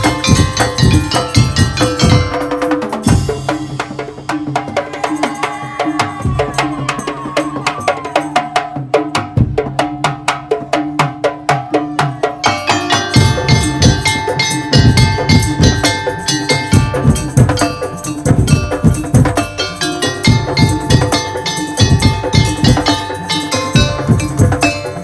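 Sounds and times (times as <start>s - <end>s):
heavy deep drum beats: 0.0s - 5.0s, 9.1s - 25.0s
sustained melodic tones: 12.5s - 25.0s.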